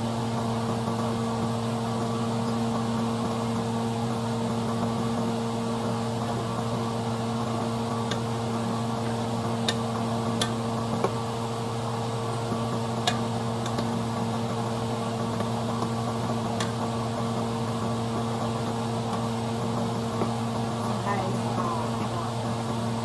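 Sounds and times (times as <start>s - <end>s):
electric motor hum: 13.0s - 23.0s.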